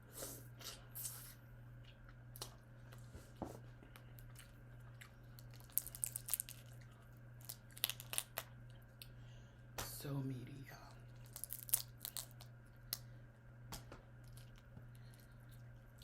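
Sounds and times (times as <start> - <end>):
low steady hum: 0.0 - 16.0
person chewing prawns: 3.9 - 9.2.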